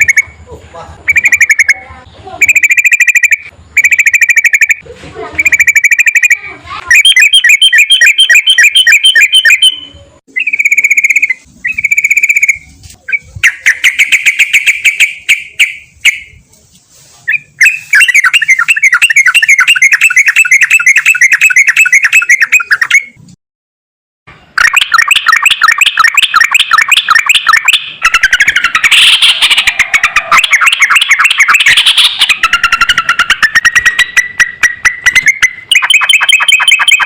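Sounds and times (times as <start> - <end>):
bird singing rattling trills: 5.4 - 16.2, 17.3 - 23.2, 24.7 - 37.0.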